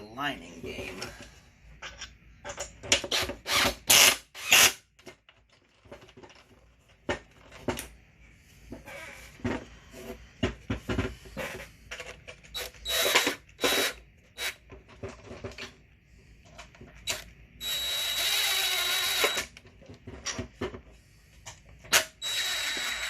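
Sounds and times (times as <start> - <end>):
tools and metal parts clicking: 1.8 - 3.4
power driver spinning screws: 3.1 - 4.8, 12.5 - 14.6, 17.0 - 19.6, 21.9 - 23.0.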